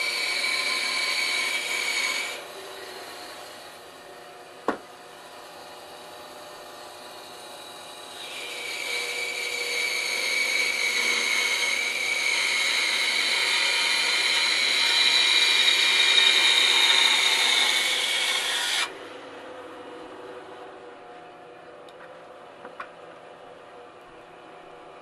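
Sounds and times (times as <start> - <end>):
bandsaw cutting wood: 0.0 - 4.0, 6.9 - 18.9
quiet machine hum: 0.0 - 25.0.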